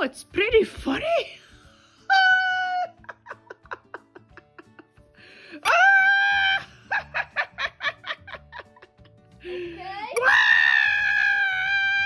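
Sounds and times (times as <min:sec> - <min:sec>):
child squealing: 0:10.2 - 0:12.0.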